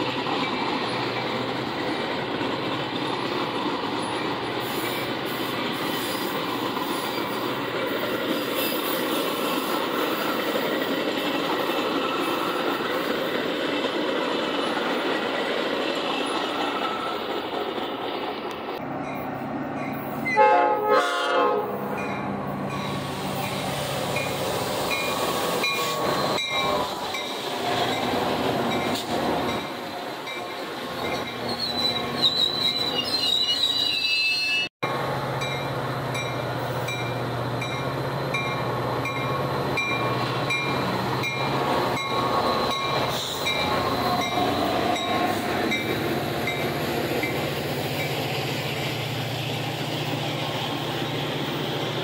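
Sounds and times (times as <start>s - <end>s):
train wheels on rail: 0.0s - 52.0s
high wheel squeal: 8.2s - 10.6s, 16.0s - 17.4s, 22.0s - 34.7s, 39.1s - 48.2s.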